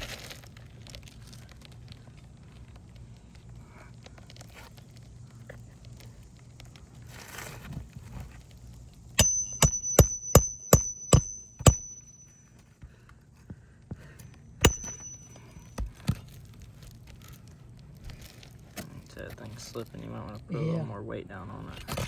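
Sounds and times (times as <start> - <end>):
hammer striking nail: 9.2 - 12.4, 14.6 - 15.9.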